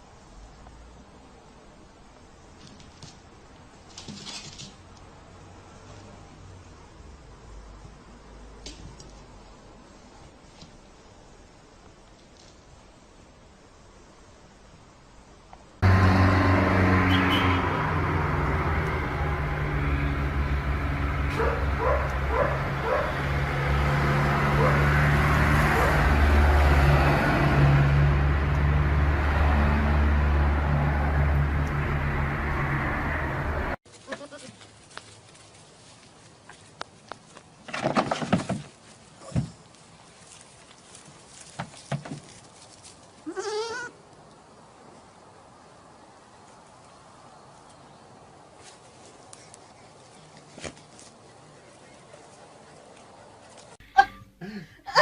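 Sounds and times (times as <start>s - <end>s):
vehicle engine running: 15.8s - 33.8s
knocks and clattering thumps: 37.7s - 39.6s
wavering bleat: 43.2s - 44.0s.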